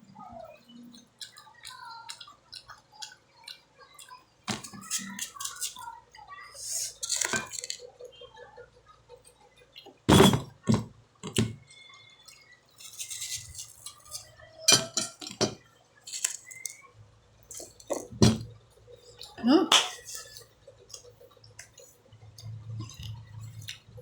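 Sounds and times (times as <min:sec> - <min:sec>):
chewing: 0:00.4 - 0:05.9, 0:18.9 - 0:24.0
dishes and cutlery clinking: 0:04.5 - 0:05.8, 0:06.8 - 0:07.9, 0:09.9 - 0:11.6, 0:12.7 - 0:16.7, 0:17.5 - 0:18.5.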